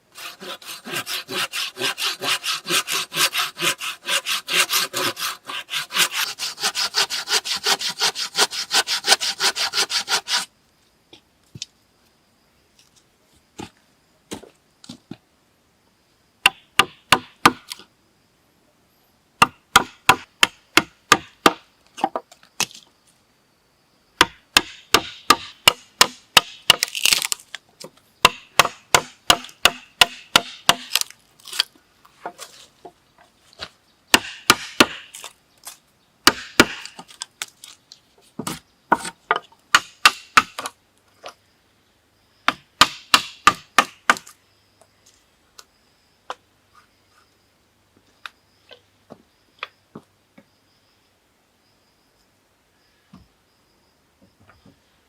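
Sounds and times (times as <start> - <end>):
wood being struck: 16.4 - 17.7, 19.4 - 22.2, 24.2 - 27.3, 28.2 - 31.1, 34.1 - 35.1, 36.2 - 37.1, 38.4 - 40.7, 42.5 - 44.3.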